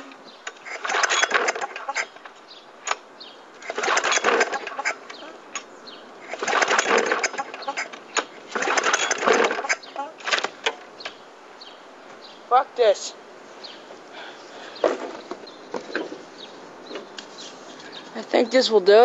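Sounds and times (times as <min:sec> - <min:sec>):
lawn mower engine cranking: 0:00.0 - 0:11.0.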